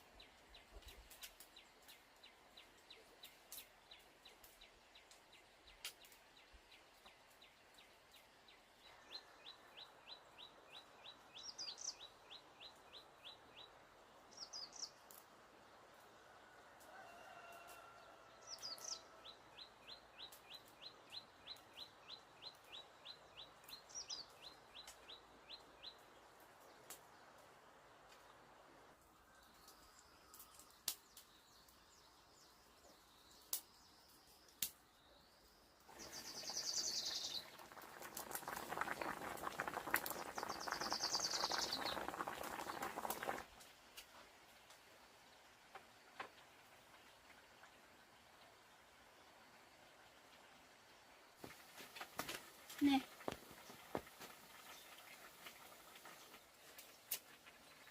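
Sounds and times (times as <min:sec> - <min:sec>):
small birds chirping: 0:00.1 - 0:15.2, 0:18.5 - 0:27.4, 0:29.3 - 0:43.4, 0:51.4 - 0:57.9.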